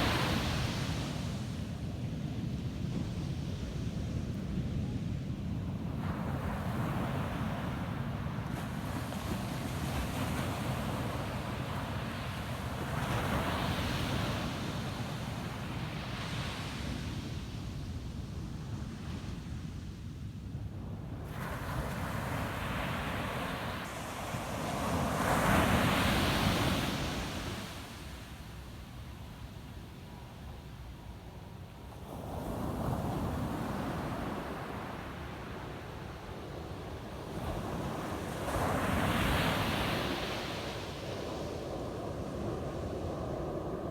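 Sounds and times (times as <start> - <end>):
wind rumble on microphone: 0.0 - 43.9
waves breaking on beach: 21.3 - 28.6.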